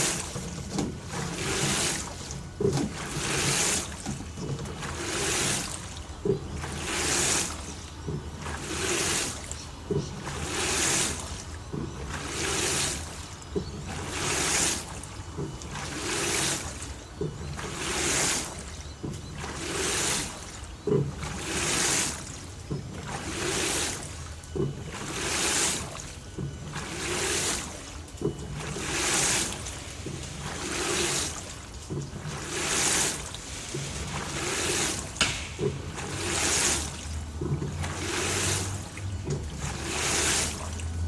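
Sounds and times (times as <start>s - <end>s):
low motor hum: 0.0s - 41.0s
water sloshing in washing machine: 0.0s - 41.0s
washing machine knock: 8.0s - 9.2s, 9.8s - 11.0s, 15.3s - 18.2s, 20.8s - 21.8s, 22.7s - 25.4s, 33.8s - 38.5s, 39.2s - 40.2s.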